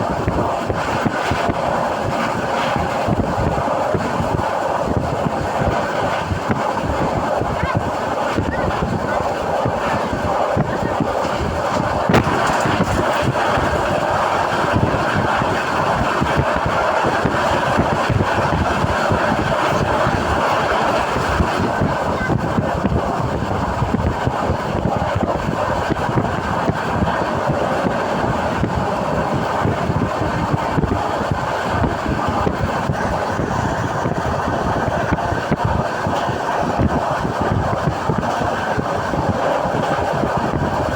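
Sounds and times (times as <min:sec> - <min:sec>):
train running noise inside carriage: 0:00.0 - 0:40.9.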